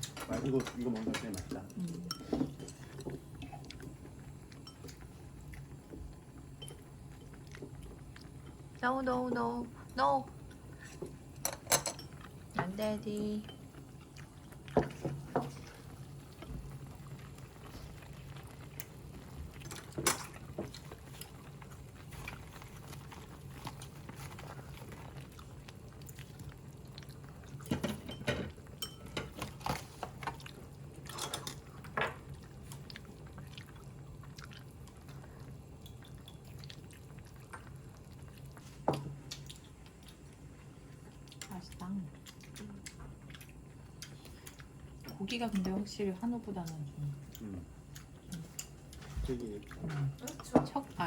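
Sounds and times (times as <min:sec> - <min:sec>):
steady low hum: 0:00.0 - 0:51.0
chewing: 0:00.9 - 0:08.8, 0:13.5 - 0:45.8, 0:46.6 - 0:50.5
utensils clinking on bowls: 0:11.4 - 0:12.3, 0:27.7 - 0:29.8.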